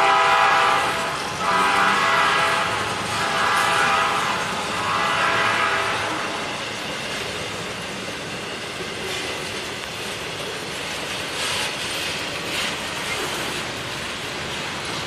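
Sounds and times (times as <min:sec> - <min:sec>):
freight wheels rumbling on rail: 0:00.0 - 0:15.0.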